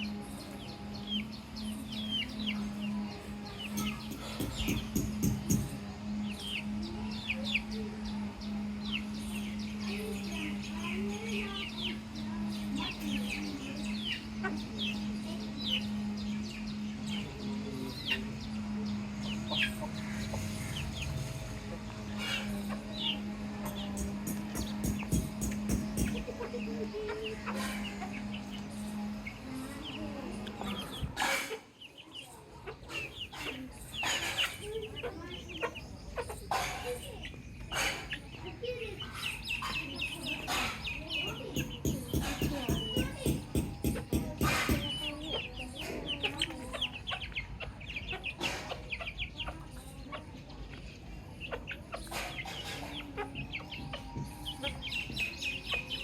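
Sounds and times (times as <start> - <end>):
baby chicks peeping: 0.0 - 56.0
clucking calls: 11.8 - 56.0.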